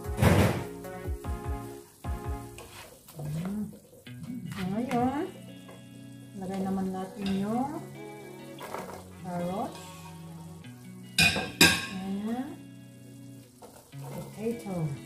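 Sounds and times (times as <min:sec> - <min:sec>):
background music: 0:00.0 - 0:15.0
meat sizzling in a wok: 0:00.0 - 0:15.0
carrots clattering into pan: 0:08.5 - 0:09.2, 0:11.2 - 0:12.1, 0:13.4 - 0:15.0.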